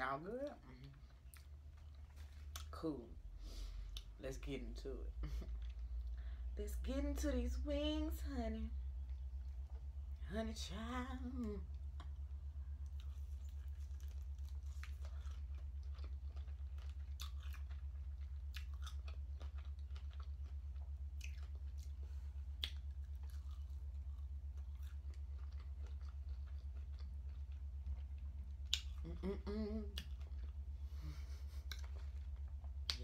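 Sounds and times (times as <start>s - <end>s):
steady low hum: 0.0s - 33.0s
crunchy chewing of chicken wings: 11.6s - 29.2s
person humming mm: 29.0s - 30.0s.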